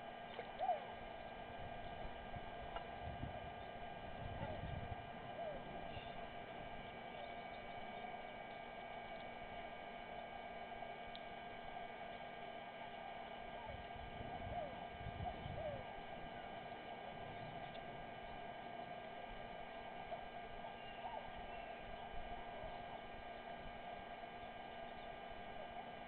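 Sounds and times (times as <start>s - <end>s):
steady electrical hum: 0.0s - 26.0s.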